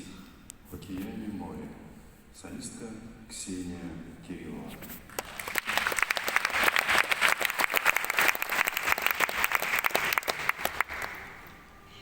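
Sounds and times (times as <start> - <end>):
audience applauding: 5.1 - 11.5.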